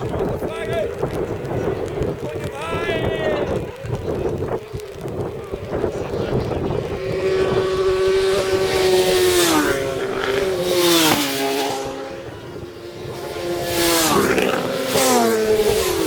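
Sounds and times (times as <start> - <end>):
racing motorcycles passing: 3.5 - 16.0.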